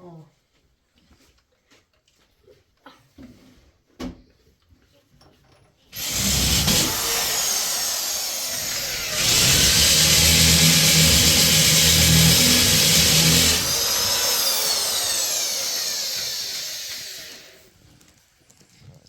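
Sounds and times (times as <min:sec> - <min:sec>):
power drill drilling: 0:06.0 - 0:17.6.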